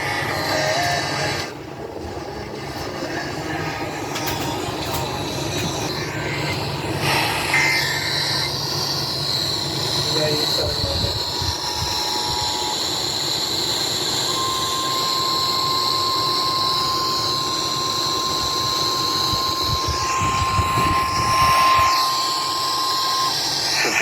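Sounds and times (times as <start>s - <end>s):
steady alarm tone: 0.0s - 24.0s
two-tone alert signal: 14.3s - 24.0s.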